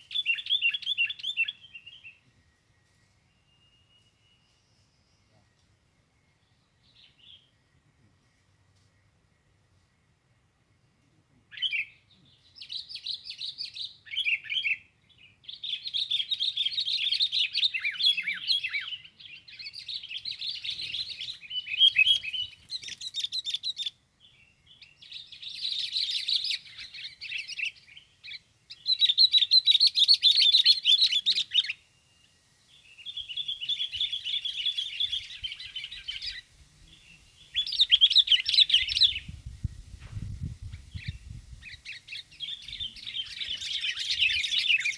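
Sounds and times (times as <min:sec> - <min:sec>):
small songbird chattering: 0:15.7 - 0:23.9, 0:33.0 - 0:39.4, 0:40.6 - 0:44.9.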